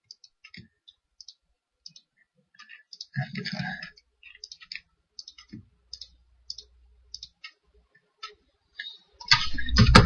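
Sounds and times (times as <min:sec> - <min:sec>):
computer mouse clicks: 0:00.0 - 0:07.6.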